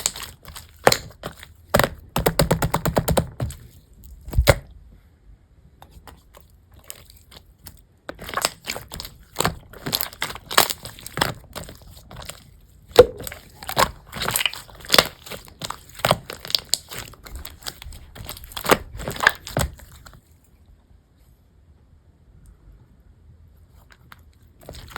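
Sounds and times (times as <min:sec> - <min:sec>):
slime squeezed crackling pops: 0:00.0 - 0:03.6, 0:08.1 - 0:20.2.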